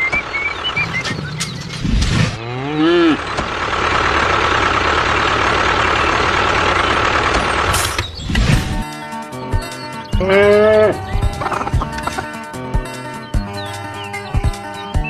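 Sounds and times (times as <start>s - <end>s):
birds chirping: 0.0s - 3.7s, 5.8s - 15.0s
engine hum with whine: 0.0s - 8.8s
cow mooing: 2.4s - 3.2s, 10.2s - 12.3s.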